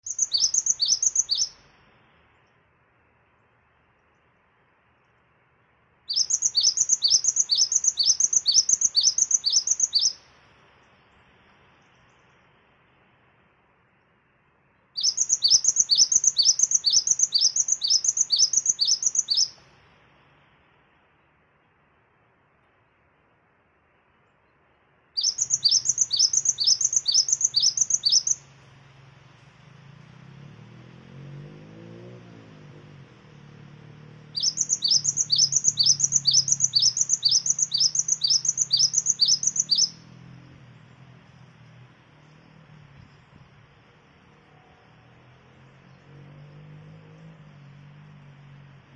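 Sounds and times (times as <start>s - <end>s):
bird whistled song: 0.0s - 1.6s, 6.1s - 10.3s, 15.0s - 19.7s, 25.2s - 28.5s, 34.3s - 40.1s.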